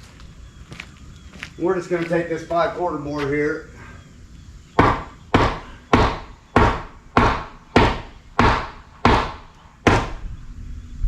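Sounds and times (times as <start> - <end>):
hammer striking wood: 4.8 - 10.2.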